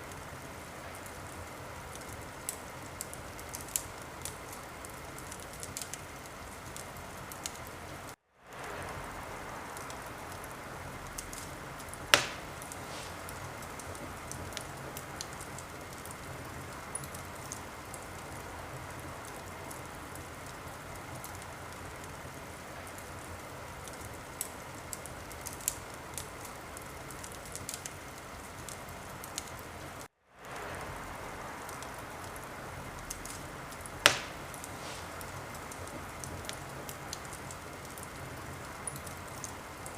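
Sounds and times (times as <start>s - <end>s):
wood fire crackling: 0.0s - 39.9s
sharp loud pops: 12.1s - 13.3s, 34.0s - 35.2s.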